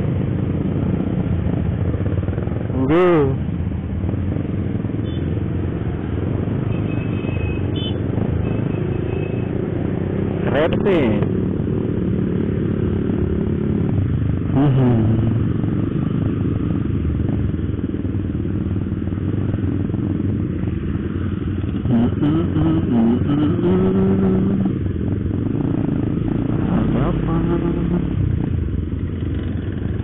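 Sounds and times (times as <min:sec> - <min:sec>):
scooters and motorbikes running: 0:00.0 - 0:30.0
motorcycle engine running: 0:07.7 - 0:30.0.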